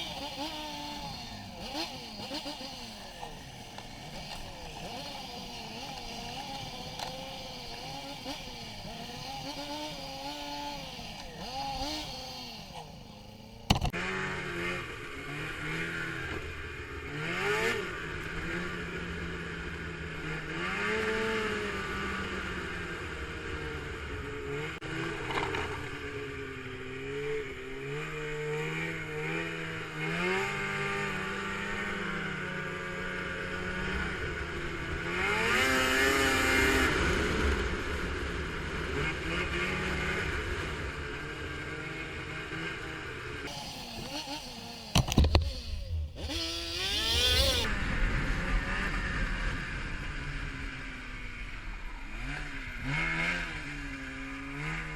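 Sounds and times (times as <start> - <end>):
vehicle engine revving: 0.0 - 54.9
sharp click: 13.7 - 13.9.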